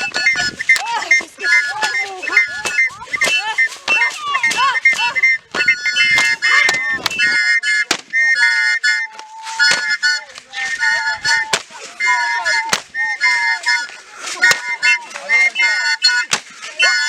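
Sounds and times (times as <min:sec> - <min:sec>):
shrill whistle-like tones: 0:00.0 - 0:17.0
percussive stamps or claps: 0:02.6 - 0:07.3, 0:07.9 - 0:08.1, 0:09.2 - 0:10.5, 0:12.7 - 0:12.9, 0:16.3 - 0:16.5.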